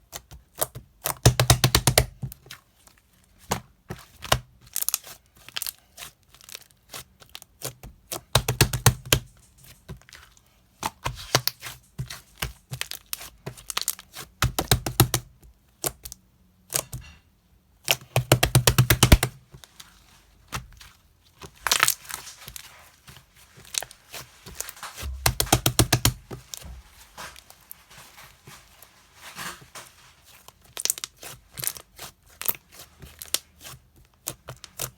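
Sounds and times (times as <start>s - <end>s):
crackling and tearing handling noise: 17.9s - 34.9s
sharp clicks and knocks: 25.0s - 26.8s.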